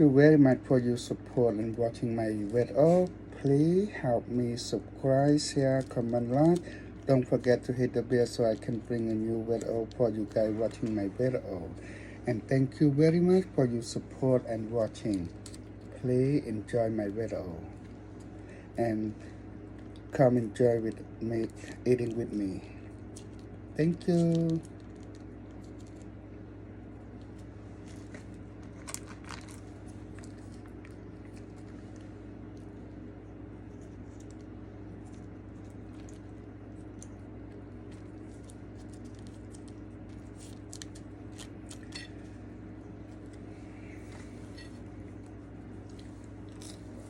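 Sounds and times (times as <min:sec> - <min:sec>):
steady low hum: 0:00.0 - 0:47.0
food packaging rustling: 0:27.2 - 0:32.3.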